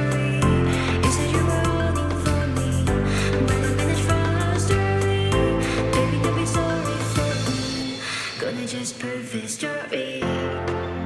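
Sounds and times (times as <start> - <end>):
background music with chords and bass: 0.0 - 8.6.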